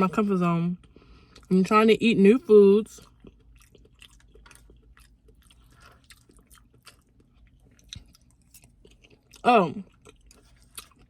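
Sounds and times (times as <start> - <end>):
person chewing food: 0.8 - 1.5, 3.0 - 11.0.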